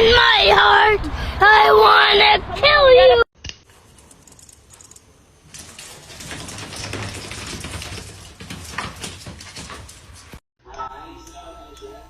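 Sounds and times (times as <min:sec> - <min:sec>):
rapid clicking and scratching: 0:03.7 - 0:10.4.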